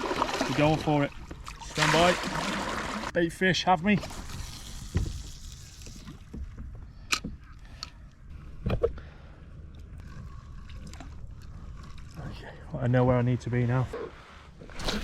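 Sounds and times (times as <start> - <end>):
water sloshing around kayak: 0.0 - 3.2.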